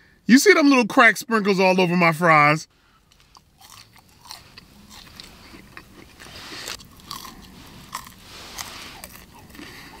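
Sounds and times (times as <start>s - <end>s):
person chewing crunchy fries: 3.0s - 10.0s.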